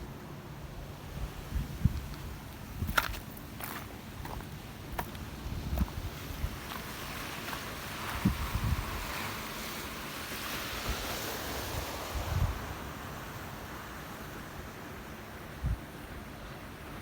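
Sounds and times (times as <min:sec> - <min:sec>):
ocean surf washing: 0:00.0 - 0:17.0
wind buffeting microphone: 0:01.0 - 0:03.3, 0:04.2 - 0:09.4, 0:10.8 - 0:12.9.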